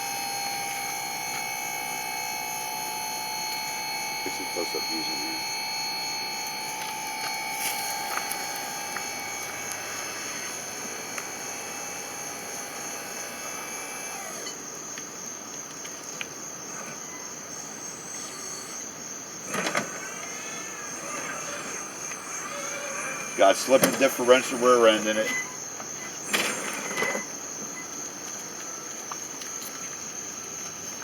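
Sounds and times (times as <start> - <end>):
high pulsing chirp: 0.0 - 13.4
small electric motor whining: 0.0 - 14.6, 16.6 - 29.8.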